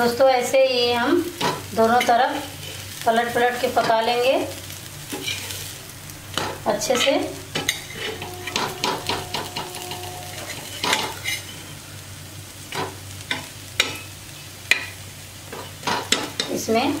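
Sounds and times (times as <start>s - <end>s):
patties sizzling in oil: 0.0s - 17.0s
steel spatula scraping a pan: 5.1s - 12.0s.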